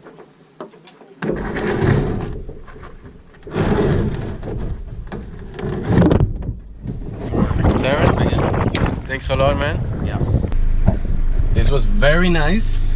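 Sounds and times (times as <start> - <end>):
wind buffeting microphone: 3.5 - 12.9.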